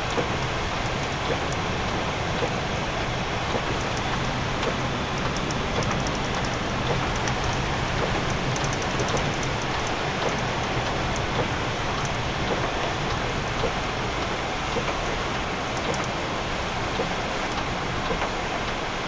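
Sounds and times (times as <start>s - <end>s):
tyres running on snowy road: 0.0s - 19.0s
faint light ticks: 3.5s - 15.1s, 15.7s - 16.2s.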